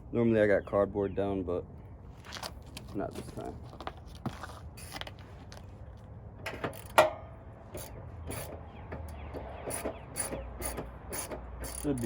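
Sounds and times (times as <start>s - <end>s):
hand tools clicking and scraping: 6.5s - 12.0s.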